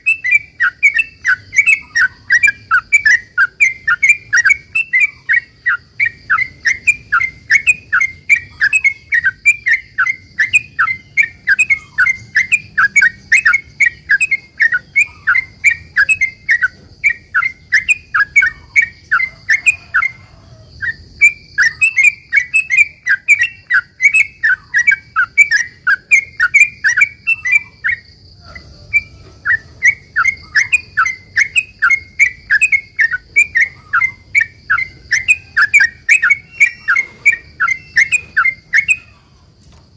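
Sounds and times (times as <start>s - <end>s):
bird singing chattering notes: 0.0s - 39.5s
faint high-pitched whine: 0.0s - 39.9s.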